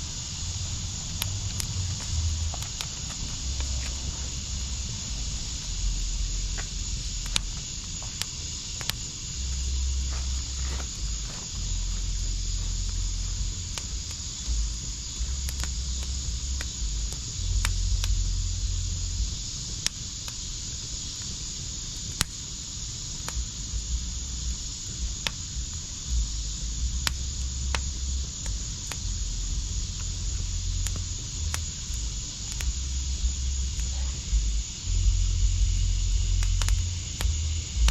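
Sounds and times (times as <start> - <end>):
fire hiss: 0.0 - 37.9
wood fire crackling and popping: 0.0 - 37.9.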